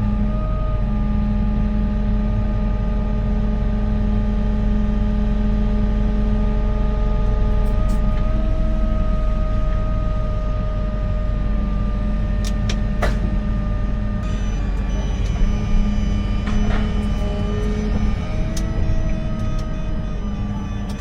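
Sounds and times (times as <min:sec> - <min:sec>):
diesel construction machinery running: 0:00.0 - 0:21.0.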